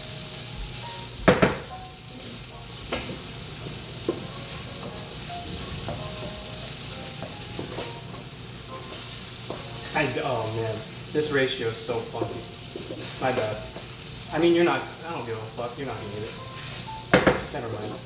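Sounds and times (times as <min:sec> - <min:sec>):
rice sizzling in a pan: 0:00.0 - 0:18.0
utensil knocking against pan: 0:01.2 - 0:01.7, 0:17.1 - 0:18.0.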